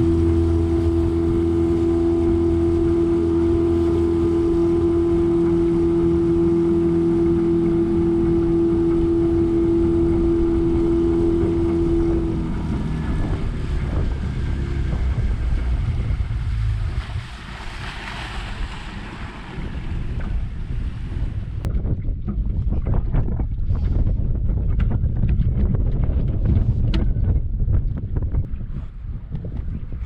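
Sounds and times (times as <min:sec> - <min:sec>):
boat motor whining and rumbling: 0:00.0 - 0:30.0
water noise: 0:00.0 - 0:30.0
wind on microphone: 0:00.0 - 0:30.0.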